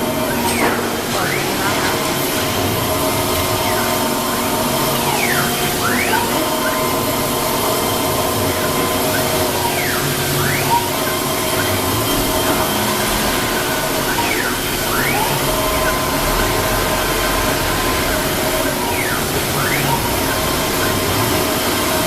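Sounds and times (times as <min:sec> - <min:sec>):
motor whine: 0:00.0 - 0:22.0
wood router drone: 0:00.0 - 0:22.0.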